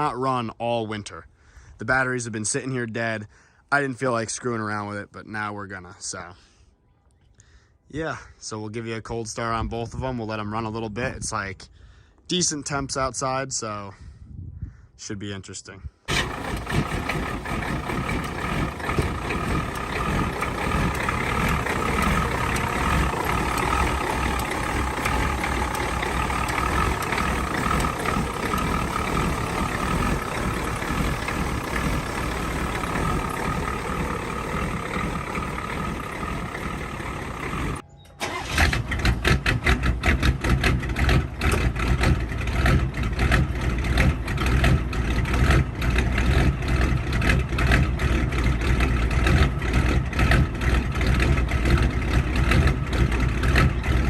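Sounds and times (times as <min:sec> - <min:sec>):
rapid rhythmic engine clatter: 0:16.1 - 0:37.8
diesel engine turning over: 0:16.1 - 0:54.0.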